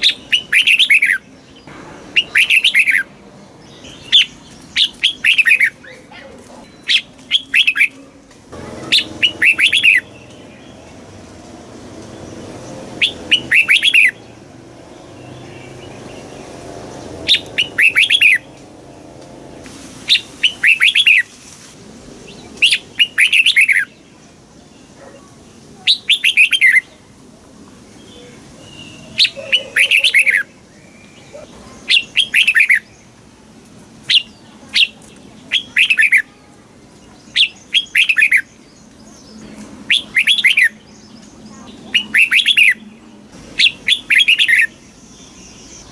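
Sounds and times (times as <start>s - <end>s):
bulbul singing whistled notes: 2.2s - 3.1s, 39.9s - 41.2s, 41.9s - 42.9s.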